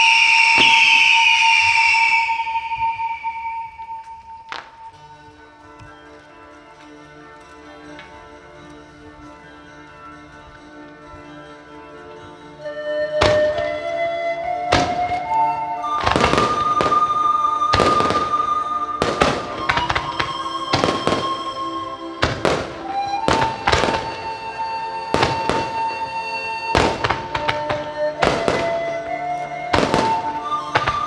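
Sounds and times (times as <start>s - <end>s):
fireworks shells bursting: 0.0s - 5.1s, 13.0s - 31.0s
music with long held notes: 0.0s - 31.0s.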